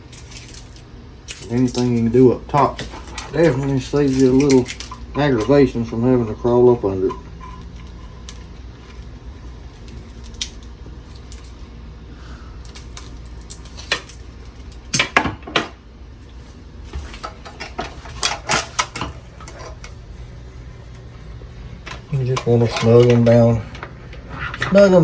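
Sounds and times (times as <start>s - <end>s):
metal fittings and tools clinking: 0.1s - 11.6s, 21.9s - 23.9s.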